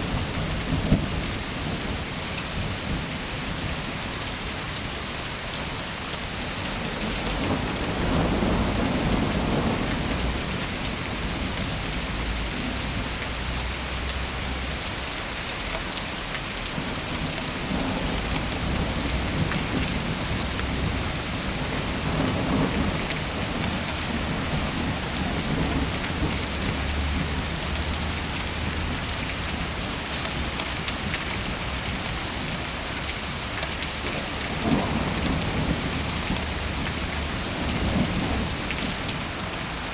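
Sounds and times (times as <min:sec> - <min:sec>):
heavy rain pattering: 0:00.0 - 0:39.9
thunder rumbles: 0:06.8 - 0:13.5, 0:16.7 - 0:33.4, 0:34.0 - 0:39.9.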